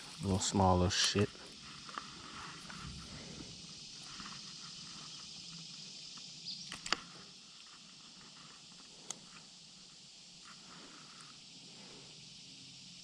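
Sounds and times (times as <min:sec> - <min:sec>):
steady high hiss: 0:00.0 - 0:13.0
sharp clicks: 0:06.2 - 0:07.1.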